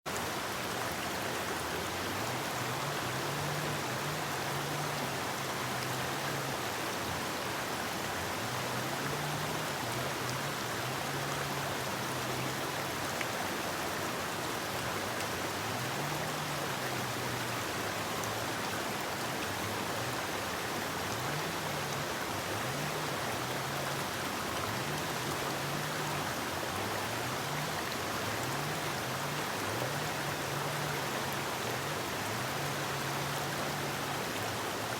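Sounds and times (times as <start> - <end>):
river water rushing: 0.1 - 34.9.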